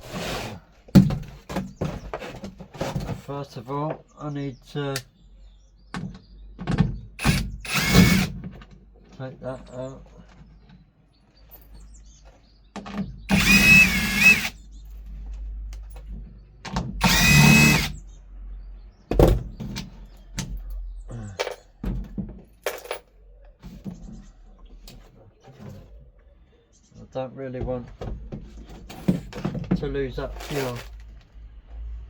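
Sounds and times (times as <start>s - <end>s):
cordless drill motor whining: 7.2s - 8.4s, 13.3s - 14.6s, 17.0s - 18.0s.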